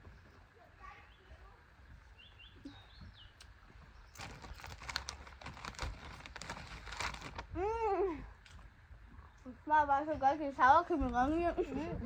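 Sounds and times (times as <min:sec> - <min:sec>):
faint bird chirps: 0:00.0 - 0:04.5
crisps being crunched: 0:04.1 - 0:07.5.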